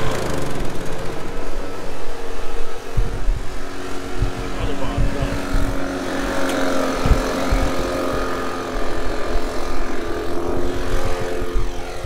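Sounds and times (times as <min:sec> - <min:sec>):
engine running steadily: 0:00.0 - 0:12.0
irregular low rumbling: 0:00.0 - 0:12.0.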